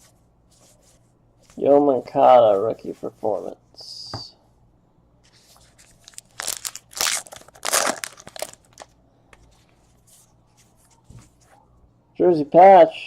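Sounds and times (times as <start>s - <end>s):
wrapper crinkling and tearing: 5.6s - 9.0s.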